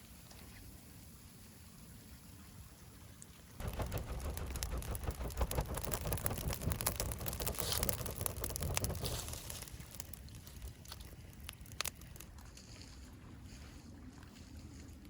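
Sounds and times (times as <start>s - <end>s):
fish sizzling on a grill: 3.8s - 12.3s.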